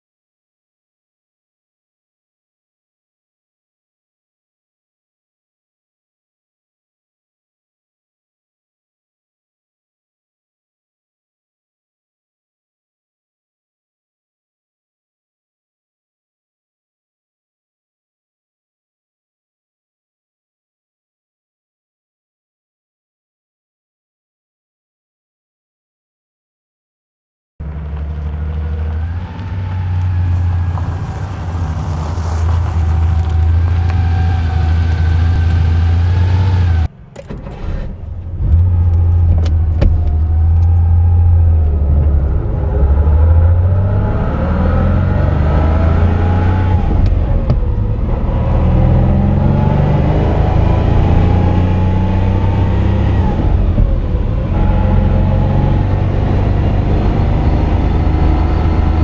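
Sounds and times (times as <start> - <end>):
car engine running: 27.6 - 44.2, 46.0 - 59.0.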